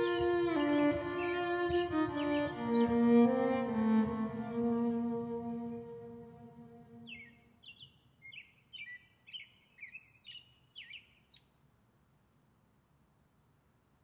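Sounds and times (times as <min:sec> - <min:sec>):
songbird whistled notes: 0:07.0 - 0:11.5.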